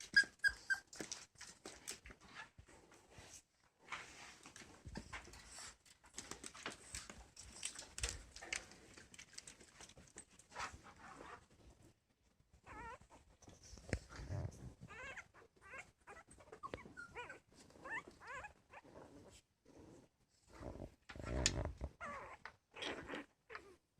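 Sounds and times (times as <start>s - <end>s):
puppies whining and squeaking: 0.0s - 1.5s, 12.6s - 13.2s, 14.3s - 18.9s
rustling and tapping of movement: 0.0s - 15.0s.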